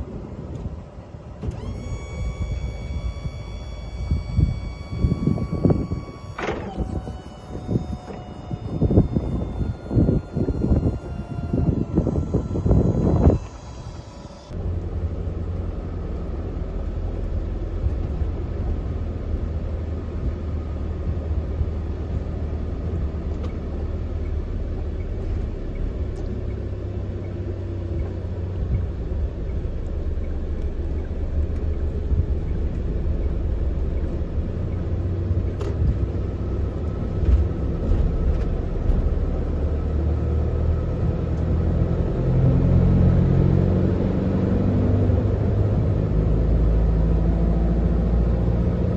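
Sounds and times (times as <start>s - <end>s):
truck diesel engine running: 1.2s - 19.2s.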